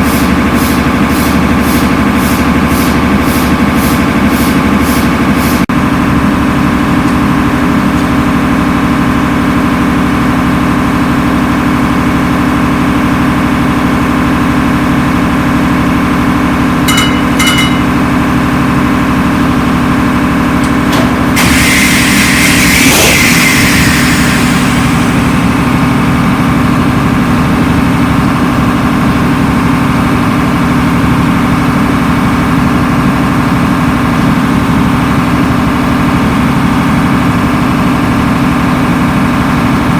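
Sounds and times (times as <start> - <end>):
diesel engine running: 0.0 - 39.9
loud hiss: 21.4 - 25.4.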